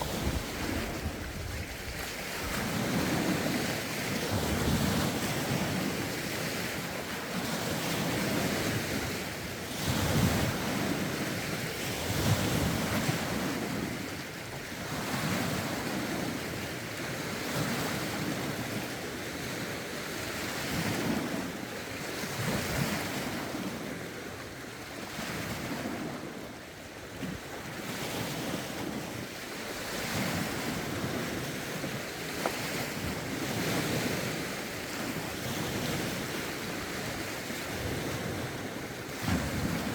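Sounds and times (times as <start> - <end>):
wind buffeting microphone: 0.0 - 6.2, 27.3 - 39.9
lake waves breaking on shore: 0.0 - 39.9.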